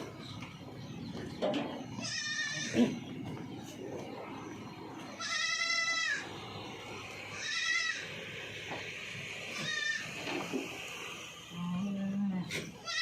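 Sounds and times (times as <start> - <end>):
goats bleating: 1.9 - 3.1, 5.1 - 6.3, 7.3 - 8.1, 9.5 - 10.2, 12.7 - 13.0.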